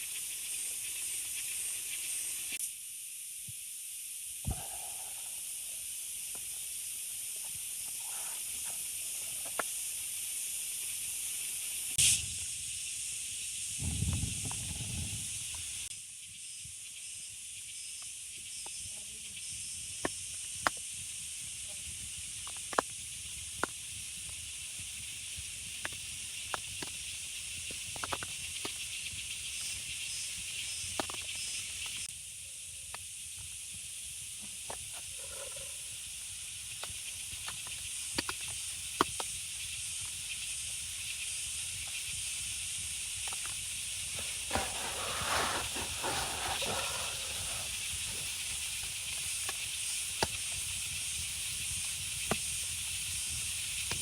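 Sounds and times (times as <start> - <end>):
rain hiss: 0.0 - 54.0
loud rustle: 44.1 - 48.3.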